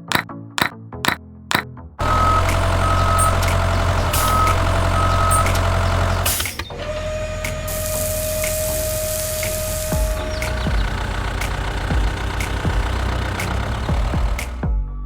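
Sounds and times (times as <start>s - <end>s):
reversing alarm beeping: 1.5s - 11.2s
vehicle engine running: 1.5s - 14.7s
high hiss: 7.5s - 11.8s.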